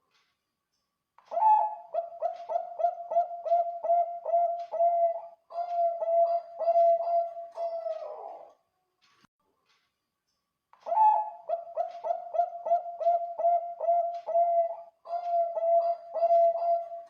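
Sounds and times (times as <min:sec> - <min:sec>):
dove rolling coos: 0:01.3 - 0:08.5, 0:10.9 - 0:17.0.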